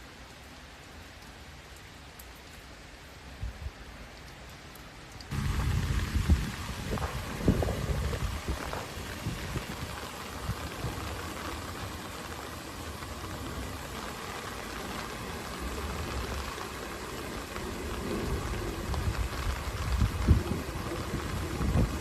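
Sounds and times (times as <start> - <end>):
rain falling: 0.0 - 22.0
low rumbling: 5.3 - 11.7.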